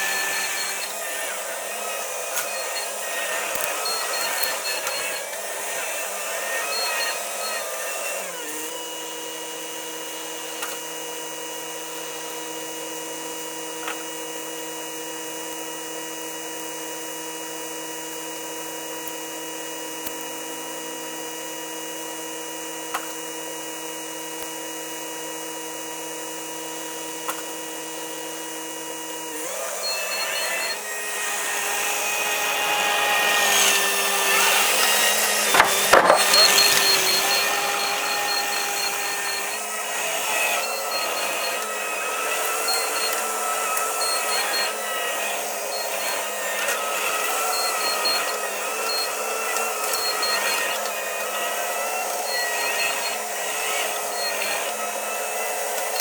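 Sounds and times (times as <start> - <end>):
diesel engine running: 30.4 - 41.8.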